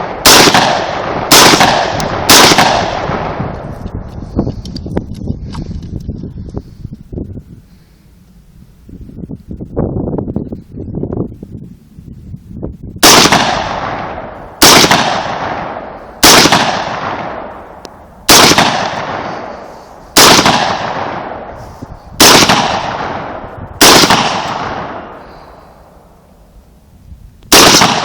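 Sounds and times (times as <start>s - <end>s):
rifle shots with rolling echo: 0.0s - 4.0s, 13.0s - 26.3s, 27.5s - 28.0s.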